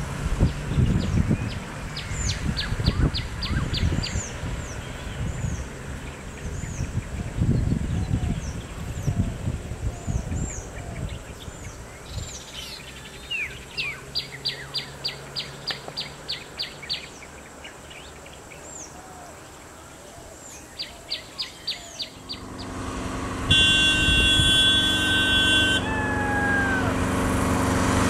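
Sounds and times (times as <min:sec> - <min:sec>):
vehicle noise: 0:00.0 - 0:28.0.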